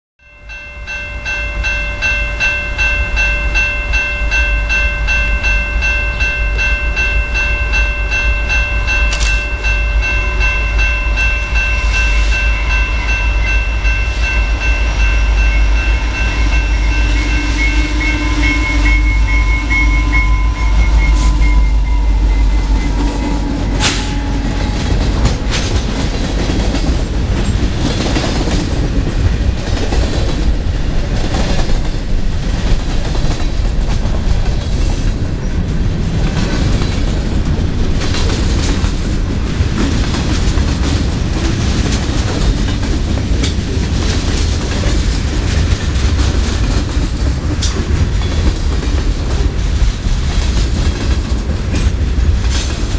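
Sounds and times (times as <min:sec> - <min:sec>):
steady ringing tone: 0:00.2 - 0:27.7
freight train rumbling past: 0:00.3 - 0:52.9
train cars clanking: 0:00.5 - 0:52.9.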